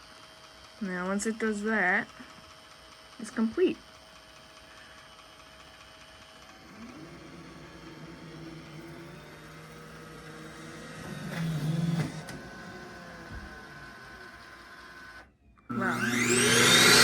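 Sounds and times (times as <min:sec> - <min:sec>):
suction motor whine: 0:04.1 - 0:17.0.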